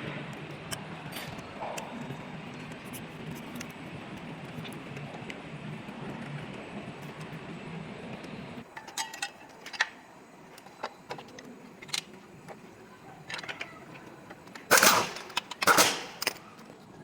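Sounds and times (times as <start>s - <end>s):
metallic clinks of tools: 13.2s - 16.6s.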